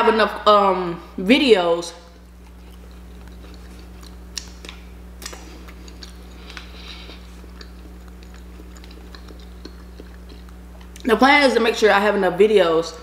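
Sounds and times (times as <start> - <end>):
low electrical hum: 0.0 - 13.0
person chewing food: 2.2 - 11.1.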